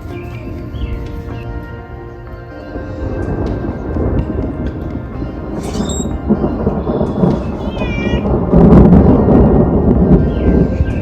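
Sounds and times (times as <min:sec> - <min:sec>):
sustained musical tones: 0:00.0 - 0:11.0
distant thunder rumbling: 0:02.7 - 0:11.0.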